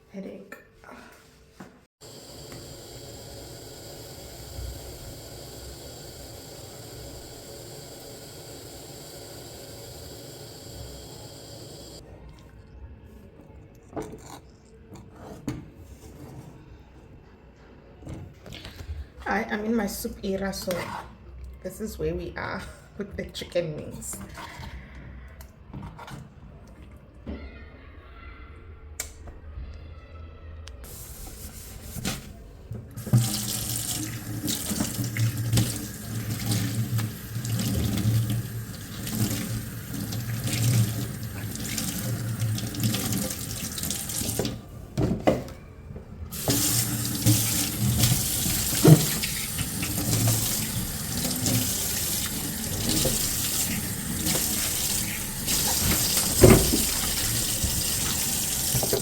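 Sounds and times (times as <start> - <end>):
tap running into sink: 33.0 - 45.4, 46.3 - 59.0.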